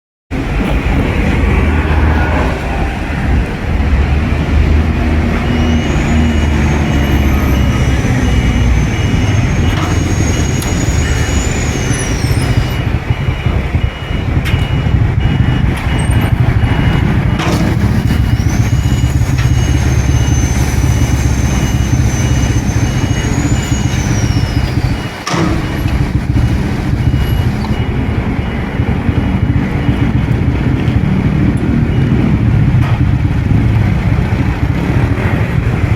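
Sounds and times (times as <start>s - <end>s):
loud road traffic: 0.3s - 35.9s
pedestrian crossing signal beeping: 0.3s - 35.9s
long high whistling tones: 0.5s - 13.6s, 17.5s - 28.6s.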